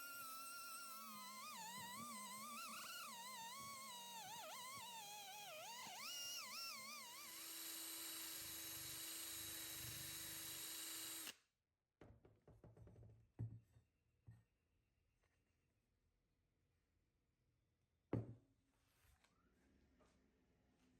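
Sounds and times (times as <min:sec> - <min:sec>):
power tool whining: 0:00.0 - 0:11.4.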